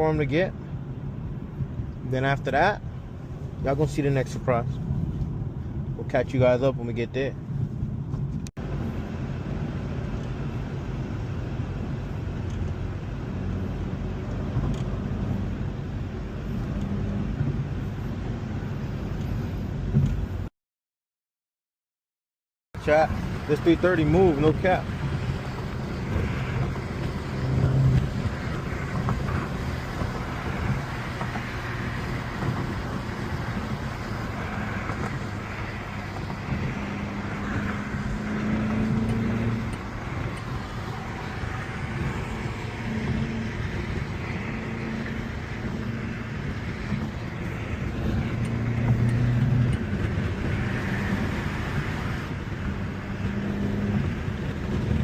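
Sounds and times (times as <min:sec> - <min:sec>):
road and traffic noise: 0:00.0 - 0:20.5, 0:22.8 - 0:55.0
car engine accelerating: 0:22.8 - 0:55.0.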